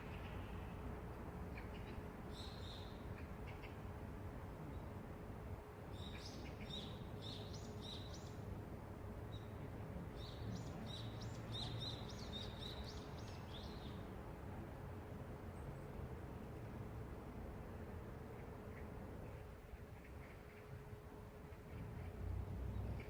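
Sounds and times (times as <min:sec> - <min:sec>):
low city rumble: 0:00.0 - 0:23.0
small birds chirping: 0:10.2 - 0:14.0.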